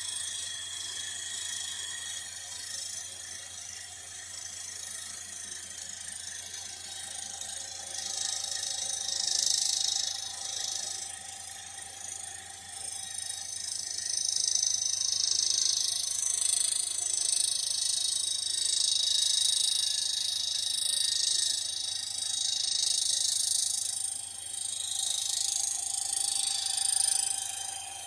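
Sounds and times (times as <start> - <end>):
machine cutter chattering on metal: 12.9 - 27.8.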